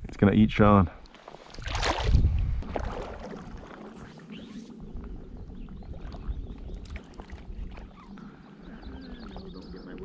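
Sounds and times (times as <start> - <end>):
water splashing and dripping: 1.1 - 8.3.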